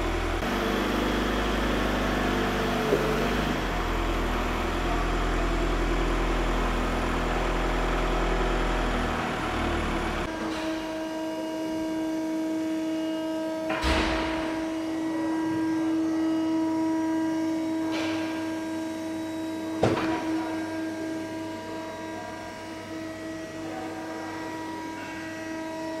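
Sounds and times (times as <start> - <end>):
factory machinery hum: 0.0 - 26.0
thump: 13.7 - 14.7, 19.8 - 20.4.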